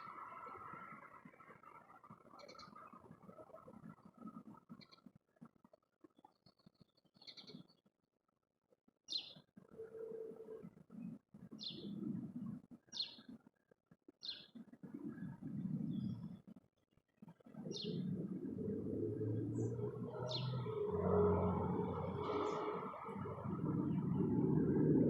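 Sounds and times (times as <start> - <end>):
songbird chirping: 11.5 - 12.0, 14.2 - 16.4, 17.5 - 24.9
low rumbling background noise: 18.0 - 25.0.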